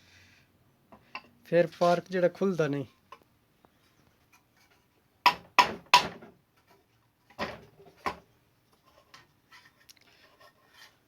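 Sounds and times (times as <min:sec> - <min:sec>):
hard knocks and clatter of parts: 0:04.6 - 0:08.3.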